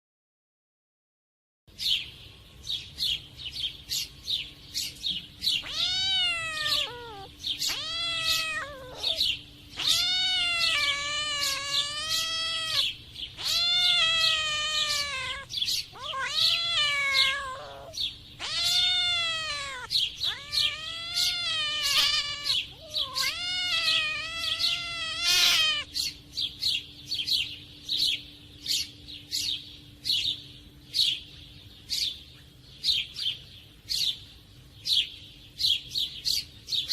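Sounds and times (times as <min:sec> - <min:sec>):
cats yowling: 0:05.4 - 0:26.0.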